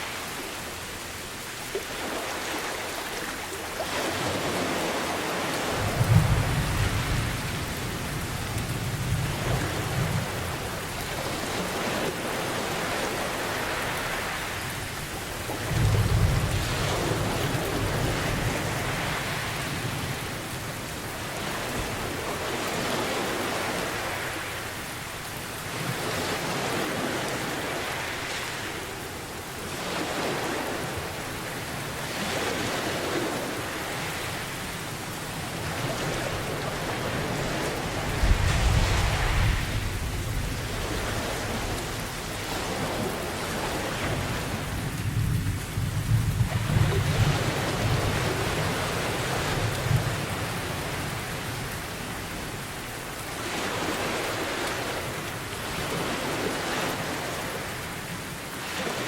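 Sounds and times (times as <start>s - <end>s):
ocean waves washing in: 0.0s - 59.0s
steady rain: 0.0s - 59.0s
low rolls of thunder: 5.6s - 10.8s, 36.2s - 42.4s, 44.1s - 51.6s.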